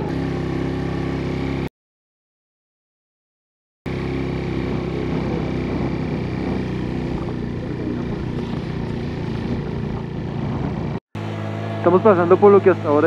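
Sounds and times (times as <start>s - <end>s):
motorcycle engine straining: 0.0s - 1.7s, 3.9s - 13.0s
person talking: 11.8s - 13.0s.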